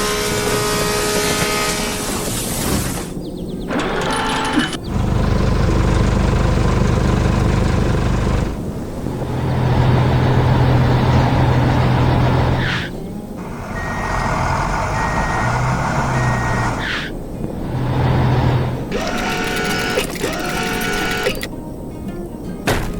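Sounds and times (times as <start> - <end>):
heavy construction vehicle engine: 0.0 - 21.5
reversing beeper beeps: 13.7 - 16.8, 18.9 - 21.5.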